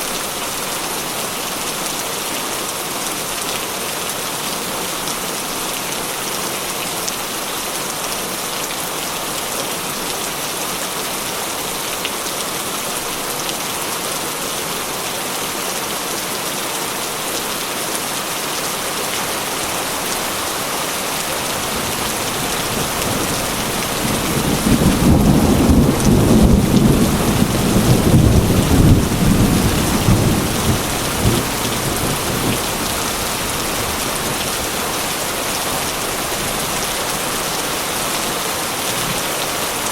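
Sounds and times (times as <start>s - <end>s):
heavy rain on a metal roof: 0.0s - 39.9s
thunder rolling: 19.7s - 33.0s.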